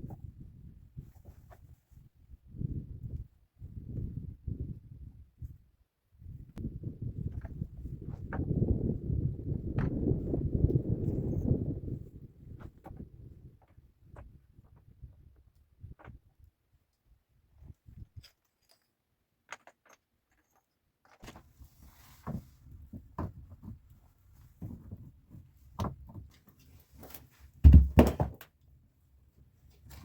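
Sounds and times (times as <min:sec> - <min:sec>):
heavy thumps: 0:27.6 - 0:28.4.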